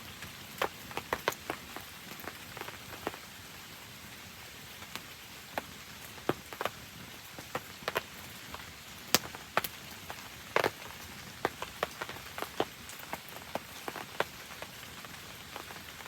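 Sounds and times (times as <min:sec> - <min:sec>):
campfire crackling and popping: 0:00.5 - 0:03.3, 0:04.8 - 0:16.0.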